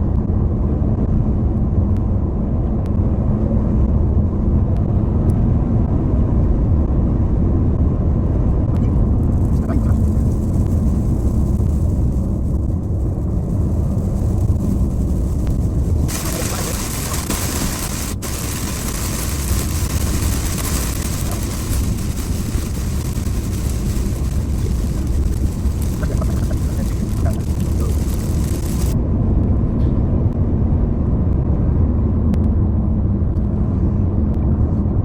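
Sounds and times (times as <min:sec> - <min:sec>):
car road rumble: 0:00.0 - 0:35.0
hiss of wind or tyre noise: 0:04.8 - 0:29.0.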